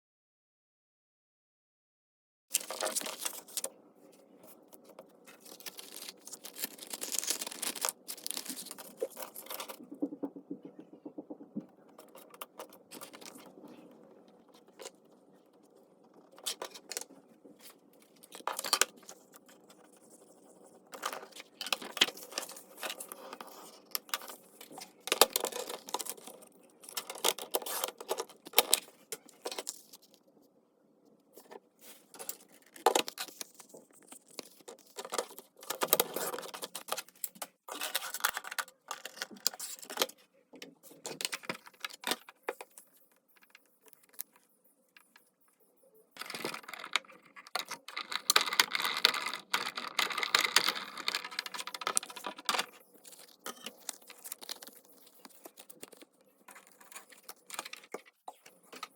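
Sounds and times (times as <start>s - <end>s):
paper rustling: 2.5s - 3.7s, 4.4s - 10.1s.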